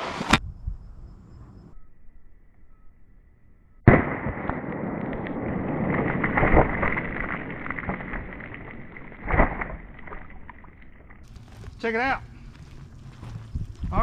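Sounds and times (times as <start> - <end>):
pistol shot: 3.9 - 6.6
water splashing and spilling: 5.8 - 11.3.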